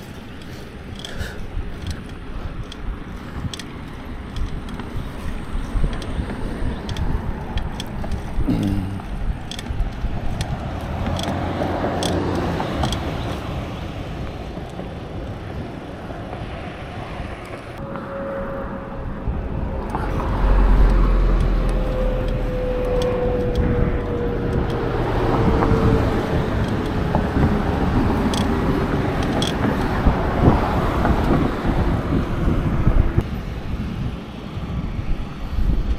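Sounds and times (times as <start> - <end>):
road traffic: 0.0 - 35.9
wind rumble on microphone: 0.0 - 35.9
vehicle passing with whine: 16.6 - 33.2.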